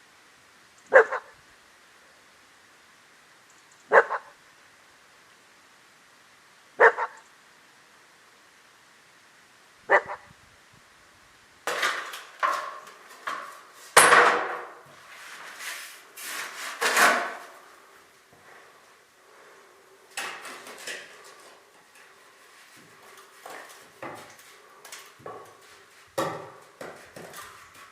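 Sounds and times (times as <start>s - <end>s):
tools scraping mortar: 14.9s - 17.8s, 20.1s - 27.9s
tools knocking on brick: 26.2s - 27.9s.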